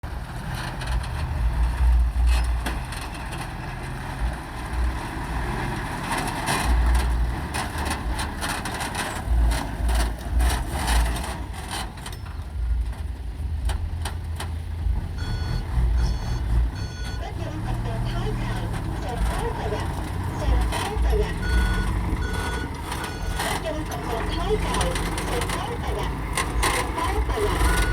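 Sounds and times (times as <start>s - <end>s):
knocks and clatter: 0.0s - 17.1s, 18.6s - 27.9s
heavy engine pulsing rumble: 0.0s - 27.9s
reversing alarm beeping: 15.2s - 27.9s.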